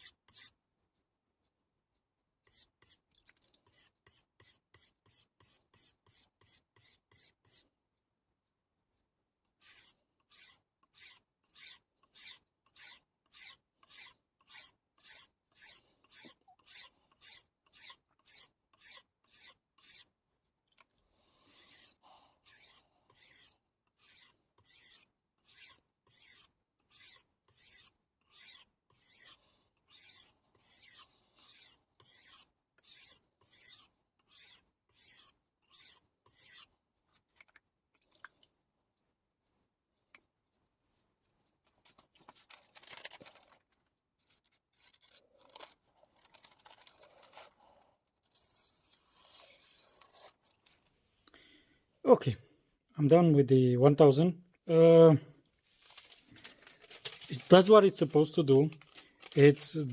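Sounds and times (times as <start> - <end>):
knife rasping on whetstone: 3.7 - 7.6, 9.6 - 20.1, 21.5 - 36.7.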